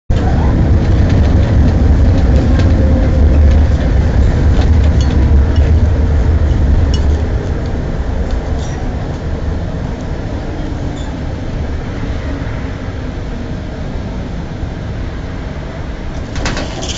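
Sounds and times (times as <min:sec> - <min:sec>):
tram rumbling on track: 0:00.0 - 0:16.9
clicks and rattles: 0:00.1 - 0:08.4, 0:16.2 - 0:16.9.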